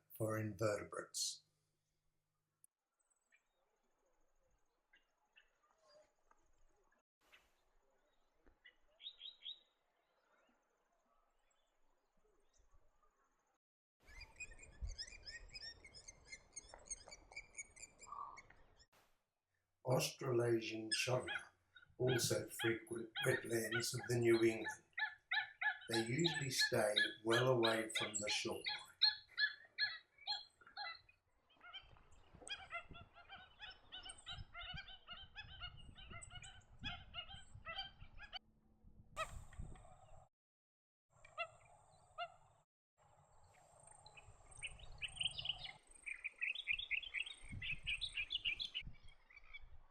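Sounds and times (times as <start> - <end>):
small birds chirping: 3.0 - 11.8, 14.1 - 18.9, 19.9 - 38.4, 43.4 - 49.9
waterbirds honking: 19.9 - 31.0.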